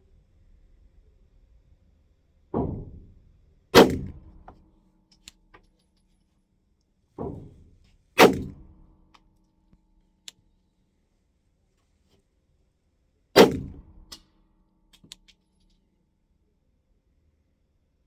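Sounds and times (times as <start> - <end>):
pistol shots: 3.8 - 4.3, 8.2 - 8.6.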